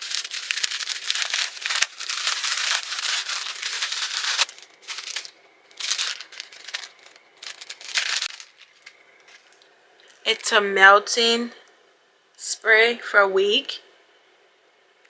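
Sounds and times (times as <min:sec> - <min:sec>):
package wrapping tearing and crinkling: 0:00.0 - 0:09.6.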